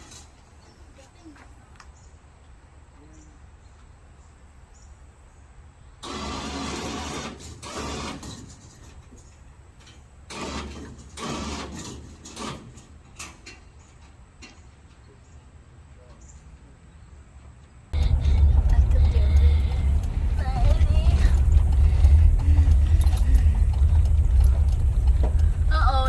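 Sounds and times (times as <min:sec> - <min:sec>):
sharp clicks: 0:18.0 - 0:26.0.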